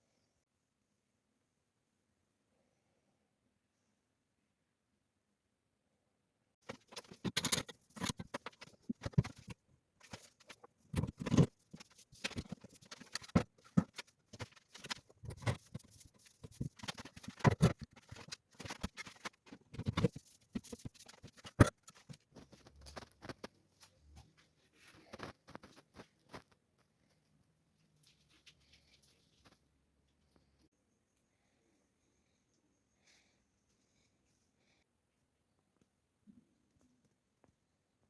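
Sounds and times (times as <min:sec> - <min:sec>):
knocks and scrapes of tiling: 0:06.6 - 0:26.9.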